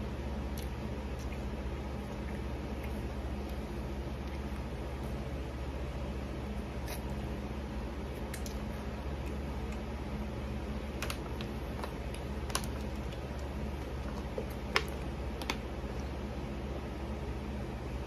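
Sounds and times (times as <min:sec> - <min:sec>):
steady low hum: 0:00.0 - 0:18.0
quiet chewing: 0:00.5 - 0:05.2, 0:06.5 - 0:07.4, 0:08.0 - 0:10.1, 0:10.8 - 0:16.2.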